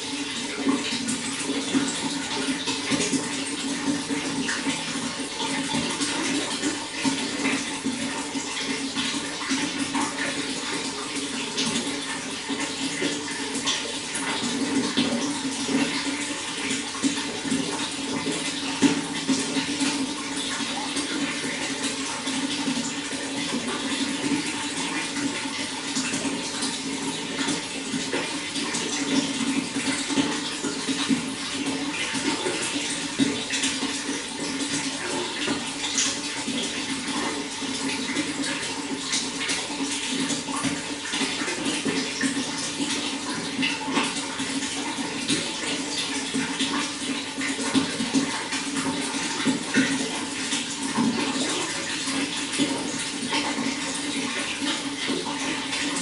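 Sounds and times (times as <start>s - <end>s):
water flowing and splashing: 0.0s - 56.0s.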